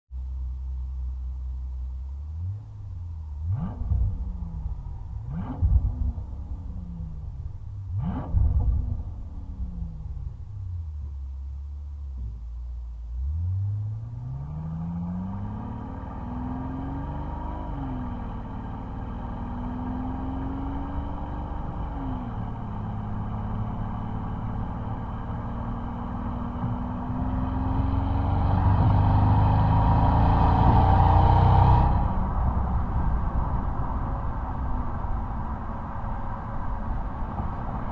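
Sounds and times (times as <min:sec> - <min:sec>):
car engine accelerating: 0:01.8 - 0:37.9.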